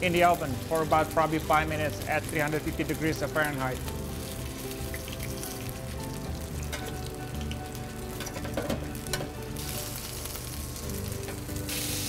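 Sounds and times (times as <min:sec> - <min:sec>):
background music: 0:00.0 - 0:12.0
food sizzling in a skillet: 0:00.0 - 0:12.0
metal tongs clicking on pan: 0:06.7 - 0:07.0.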